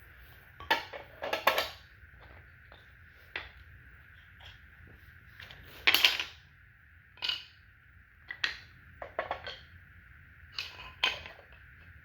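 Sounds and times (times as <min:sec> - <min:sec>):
wooden toy track pieces clacking: 0:10.6 - 0:11.7.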